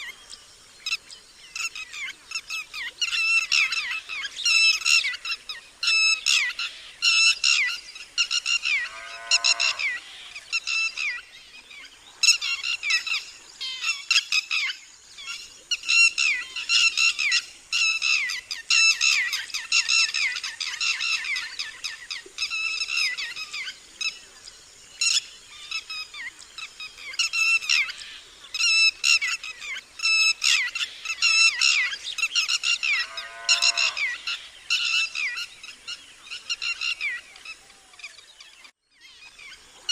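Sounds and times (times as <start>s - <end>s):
low rising bird call: 8.7s - 10.4s, 32.8s - 34.4s.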